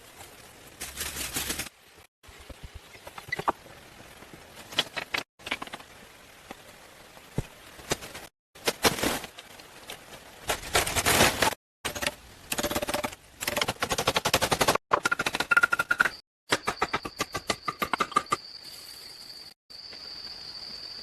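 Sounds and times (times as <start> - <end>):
scraping or rustling: 7.8 - 11.6.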